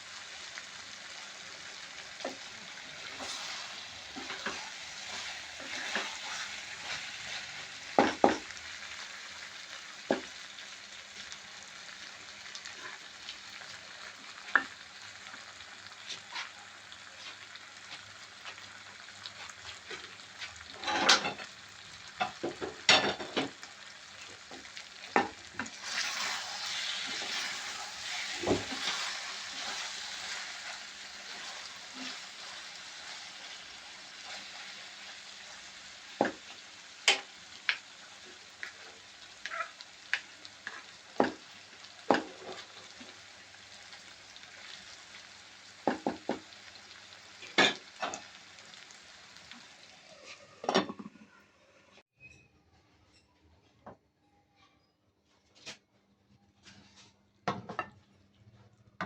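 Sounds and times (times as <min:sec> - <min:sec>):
food sizzling in a frying pan: 0:00.0 - 0:52.0
spatula scraping and knocking pan: 0:03.1 - 0:08.5, 0:24.5 - 0:33.5, 0:36.1 - 0:37.8, 0:39.4 - 0:43.1.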